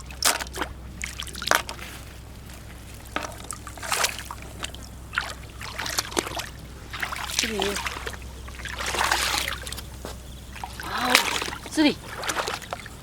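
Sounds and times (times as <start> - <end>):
trickling water: 0.0 - 13.0.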